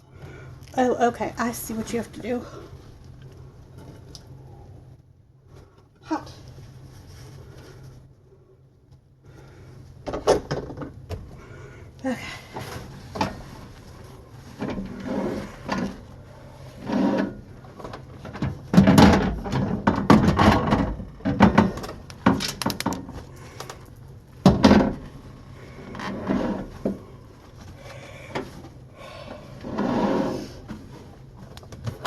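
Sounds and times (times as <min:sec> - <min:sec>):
cloth rubbing inside microwave: 0:12.6 - 0:22.0.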